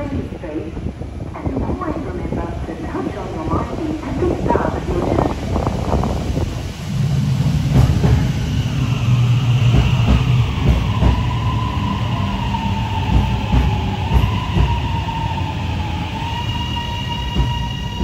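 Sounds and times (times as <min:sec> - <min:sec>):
wheels rumbling on rail: 0:00.0 - 0:18.0.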